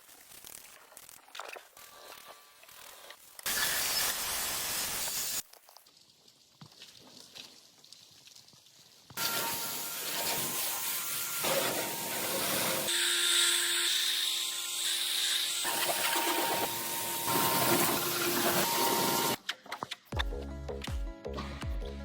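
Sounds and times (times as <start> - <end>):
polisher rubbing on surface: 9.2 - 12.9, 15.7 - 19.4
power polisher motor whine: 9.2 - 19.4.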